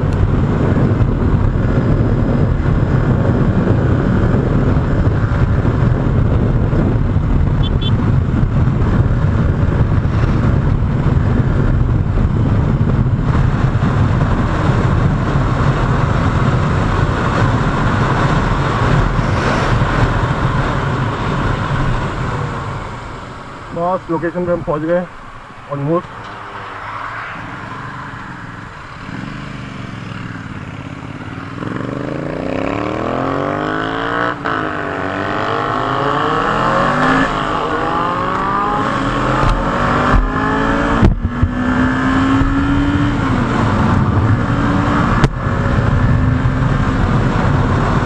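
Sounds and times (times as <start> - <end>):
motorcycle engine revving: 26.1 - 48.0.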